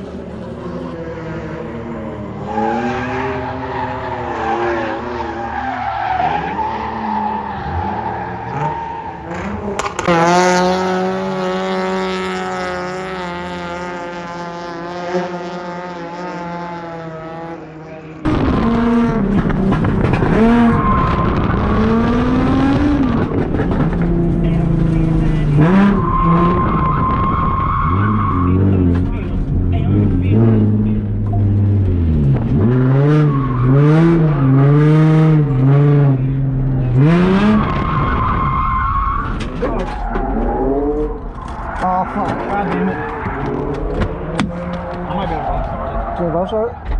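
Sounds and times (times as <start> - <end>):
car engines revving: 0.0 - 46.9.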